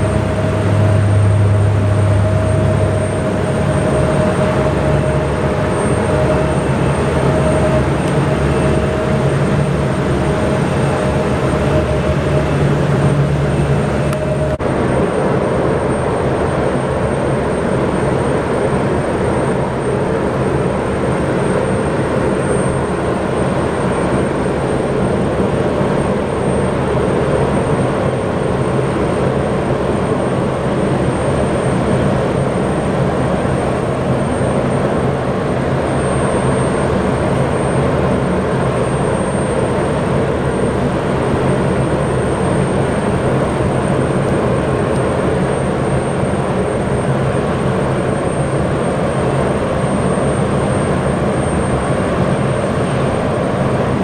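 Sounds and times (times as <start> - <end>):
aircraft engine rumble with whine: 0.0 - 54.0.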